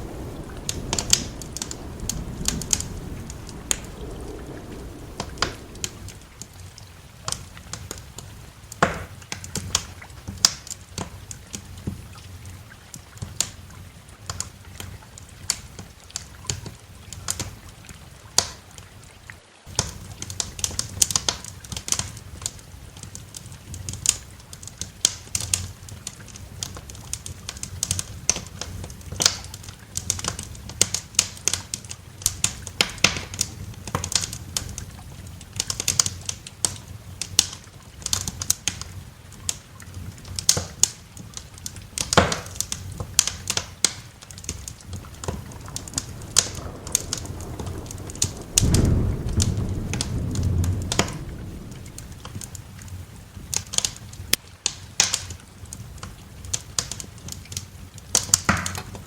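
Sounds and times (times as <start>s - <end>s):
thunder rumbling: 0.0s - 8.6s, 42.7s - 54.3s
wood fire crackling and popping: 0.0s - 17.7s, 18.3s - 18.6s, 19.7s - 59.0s
rain hiss: 0.0s - 59.0s.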